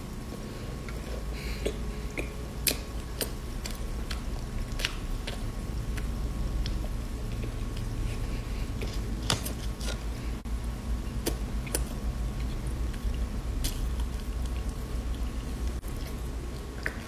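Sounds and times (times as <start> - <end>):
low hum: 0.0 - 17.0
chewing crisp snack: 11.1 - 17.0.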